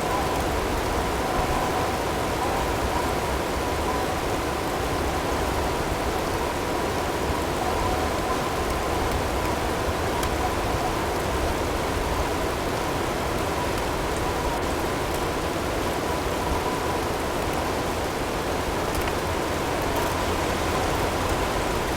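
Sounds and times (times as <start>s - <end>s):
wind: 0.0s - 21.9s.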